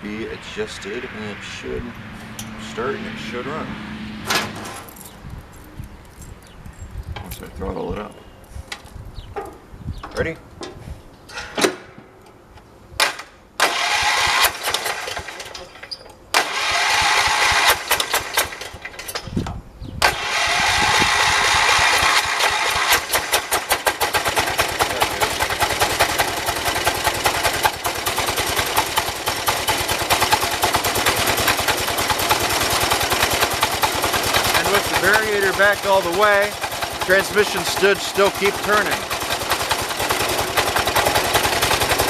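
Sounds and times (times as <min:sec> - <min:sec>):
small engine running: 0:13.6 - 0:15.6, 0:16.4 - 0:19.0, 0:20.0 - 0:42.0
engine starter cranking: 0:13.6 - 0:19.3, 0:20.0 - 0:42.0.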